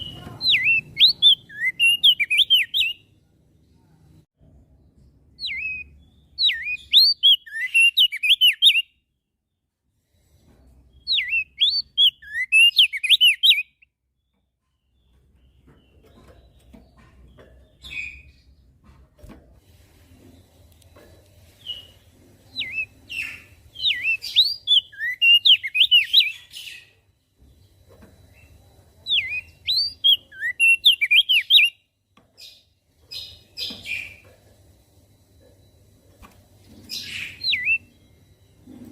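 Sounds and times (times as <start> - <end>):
bird whistling song: 0.0 - 3.1, 5.4 - 9.0, 10.9 - 13.9, 21.6 - 27.0, 28.3 - 34.2, 36.9 - 38.2
bird chirps: 0.0 - 4.0, 5.0 - 9.6, 10.8 - 18.8, 20.8 - 35.9, 36.7 - 38.9.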